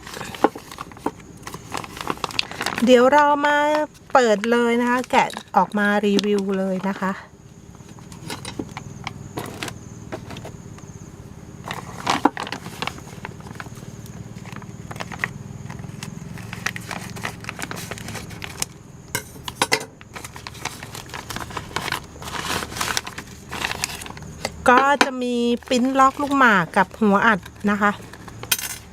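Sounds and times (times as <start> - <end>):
packaging rustling: 0.0 - 2.9, 11.6 - 18.8, 19.5 - 24.6, 25.6 - 26.5
steady low hum: 0.0 - 28.9
parts clicking and knocking: 7.7 - 10.9, 27.4 - 28.9.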